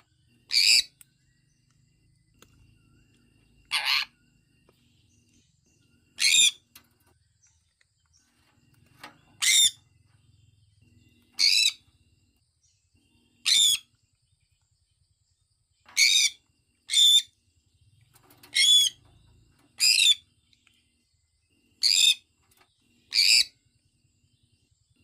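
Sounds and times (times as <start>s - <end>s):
parrot harsh chirps: 0.5s - 0.9s, 3.7s - 4.1s, 6.2s - 6.6s, 13.4s - 13.9s.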